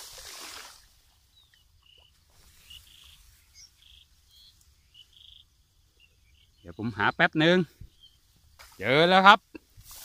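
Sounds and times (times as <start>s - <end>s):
faint bird chirps and trills: 1.2s - 8.6s.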